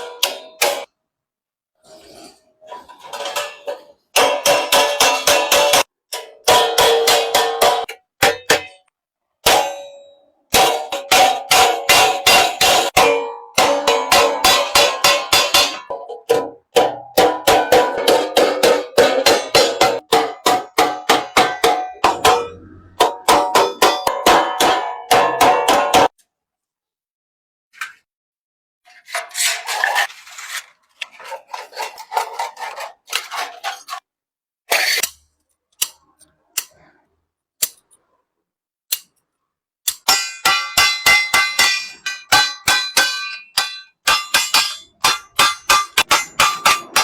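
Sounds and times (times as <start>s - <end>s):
hammer striking metal on anvil: 4.2s - 26.1s, 39.9s - 47.0s.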